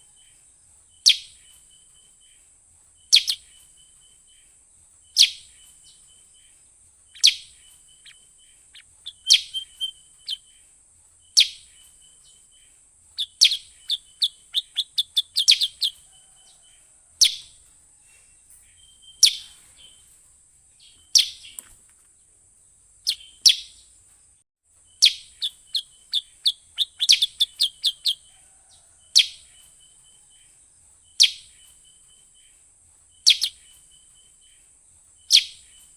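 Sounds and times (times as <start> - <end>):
bird lure call chirps: 7.1 - 10.4, 25.0 - 28.2.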